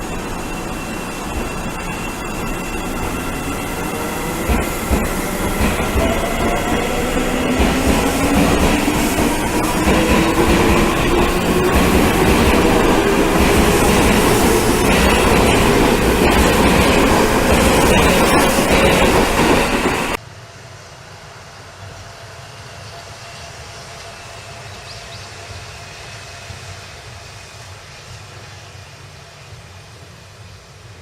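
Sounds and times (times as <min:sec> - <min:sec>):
electric train motor whine: 0:00.0 - 0:20.2
train wheels clacking on rails: 0:00.0 - 0:20.2.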